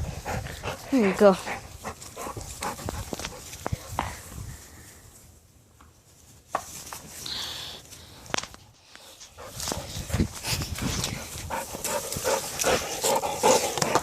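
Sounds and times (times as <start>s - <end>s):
dogs playing: 0.0s - 4.3s, 9.1s - 14.0s.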